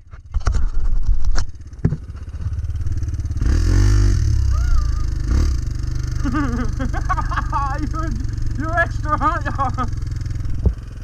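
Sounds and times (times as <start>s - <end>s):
dirt bike engine revving: 2.3s - 11.0s.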